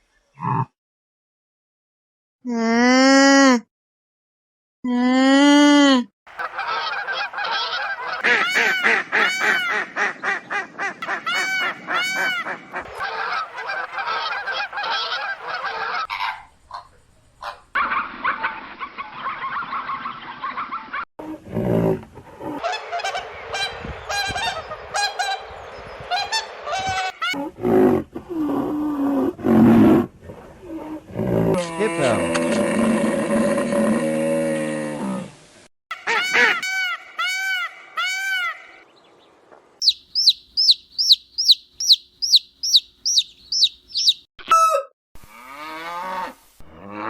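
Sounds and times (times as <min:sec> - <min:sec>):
geese honking: 0:06.3 - 0:16.4, 0:22.6 - 0:25.5, 0:26.1 - 0:27.4, 0:39.8 - 0:44.8.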